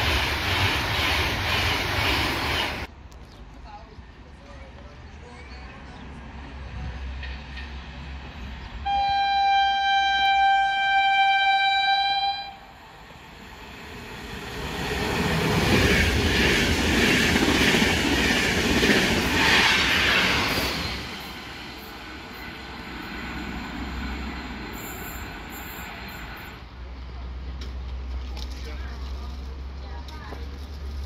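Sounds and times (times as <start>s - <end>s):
train horn blast: 8.8s - 12.7s.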